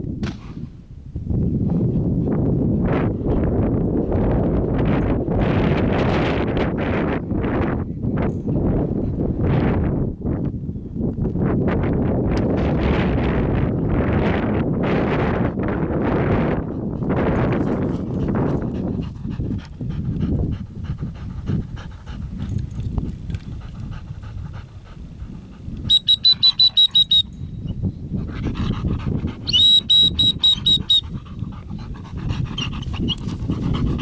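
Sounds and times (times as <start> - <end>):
dog panting: 16.3 - 27.1, 28.0 - 34.0.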